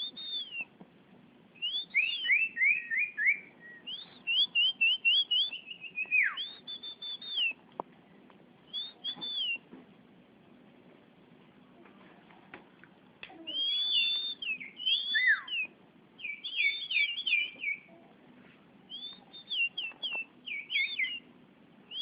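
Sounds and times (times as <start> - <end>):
songbird whistling: 0.0 - 0.8, 1.6 - 7.6, 8.7 - 9.7, 13.5 - 18.0, 18.9 - 21.3.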